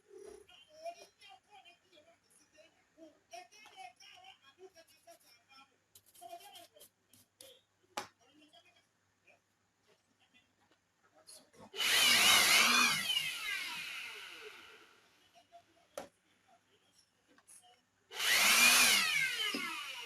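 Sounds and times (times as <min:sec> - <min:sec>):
small electric motor whirring: 0:11.8 - 0:14.9, 0:18.1 - 0:20.0.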